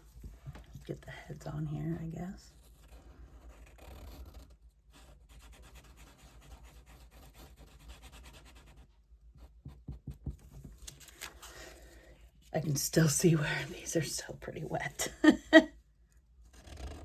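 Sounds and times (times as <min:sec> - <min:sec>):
tool scratching on paper: 0:02.5 - 0:10.1.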